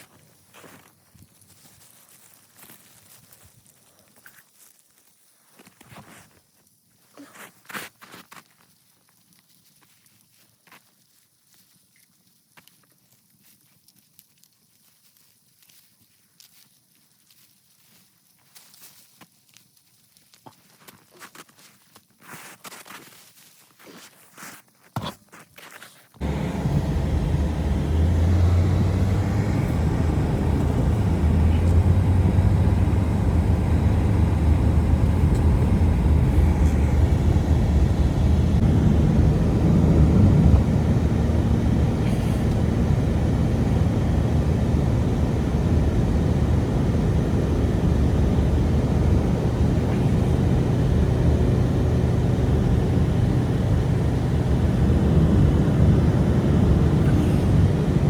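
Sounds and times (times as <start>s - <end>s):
strong blizzard wind: 26.2s - 58.0s.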